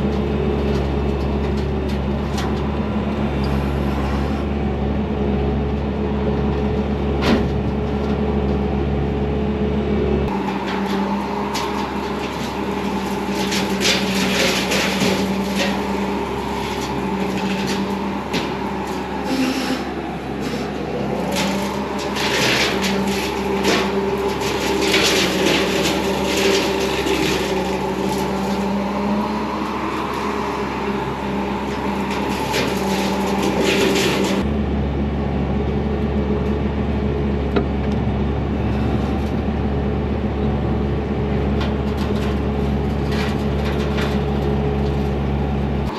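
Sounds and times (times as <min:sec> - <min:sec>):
diesel engine running under load: 0:00.0 - 0:45.9.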